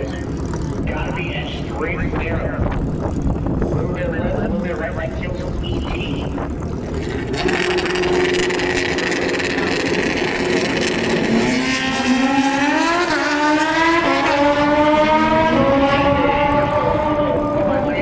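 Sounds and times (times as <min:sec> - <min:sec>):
racing engine accelerating: 0:00.0 - 0:18.0.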